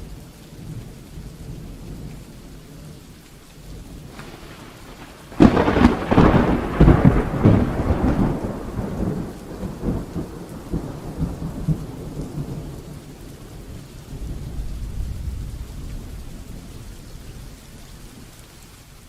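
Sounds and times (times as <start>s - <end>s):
heavy rain: 0.0s - 19.0s
thunder rumbling: 3.7s - 17.8s.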